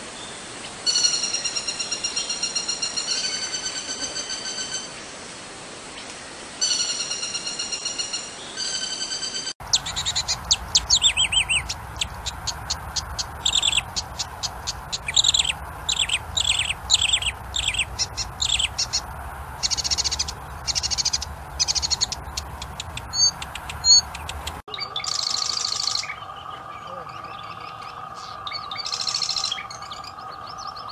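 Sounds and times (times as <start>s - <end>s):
fast varied birdsong with trills: 0.0s - 5.2s, 5.9s - 30.9s
held whistled bird notes: 0.9s - 5.0s, 6.6s - 19.0s, 19.6s - 30.9s.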